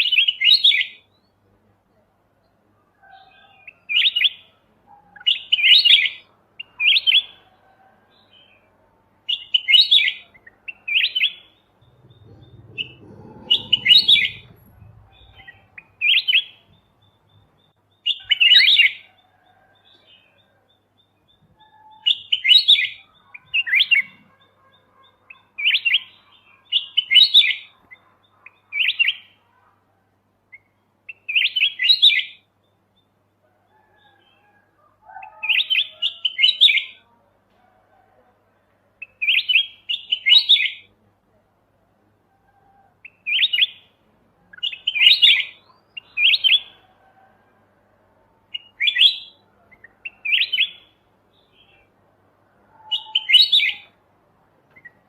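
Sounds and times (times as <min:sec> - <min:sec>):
bulbul singing warbled phrases: 0:09.3 - 0:19.1.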